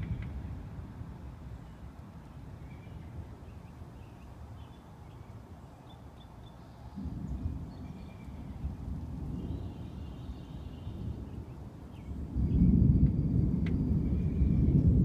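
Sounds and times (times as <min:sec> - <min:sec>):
low rolling thunder: 0:00.0 - 0:03.9, 0:06.9 - 0:15.0.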